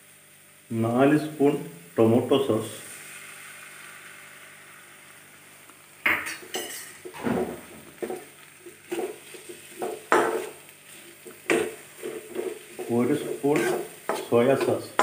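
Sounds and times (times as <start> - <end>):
faint sizzle: 0.0 - 15.0
spoon clanking and scraping pan: 6.1 - 7.2, 8.0 - 15.0.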